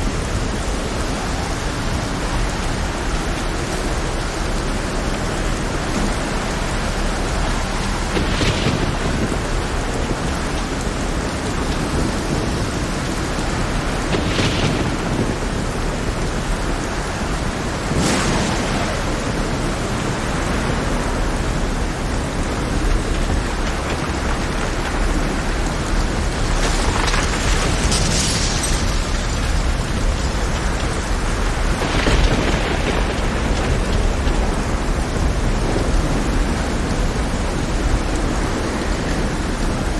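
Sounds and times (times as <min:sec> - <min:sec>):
heavy rain pouring: 0:00.0 - 0:39.9
rough sea: 0:00.0 - 0:39.9.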